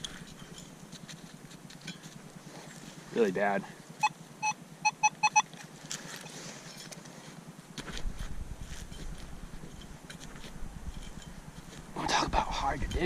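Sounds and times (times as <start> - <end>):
short electronic beeps: 4.0 - 5.5.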